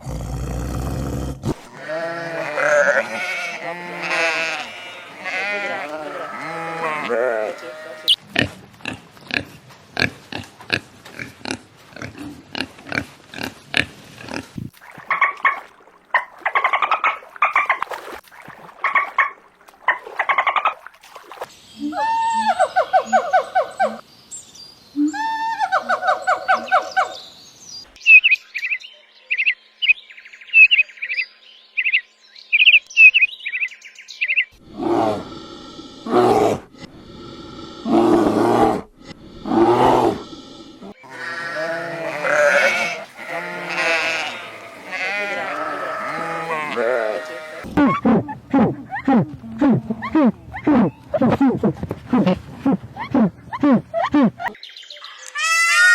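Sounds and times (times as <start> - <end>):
deep animal call: 34.6 - 54.6
long rising animal calls: 34.6 - 54.6.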